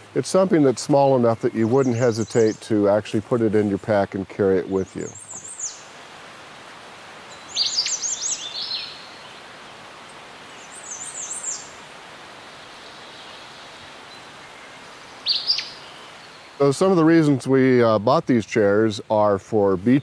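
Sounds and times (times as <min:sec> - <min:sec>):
steady outdoor hiss: 0:00.0 - 0:20.0
small bird chirping: 0:04.8 - 0:05.9, 0:07.3 - 0:09.4, 0:10.5 - 0:11.8, 0:12.8 - 0:16.6.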